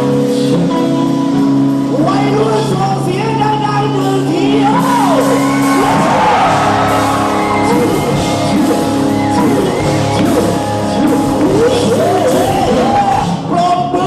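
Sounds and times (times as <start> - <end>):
loud amplified music: 0.0 - 14.0
person singing: 4.0 - 14.0
shouts: 4.6 - 9.8.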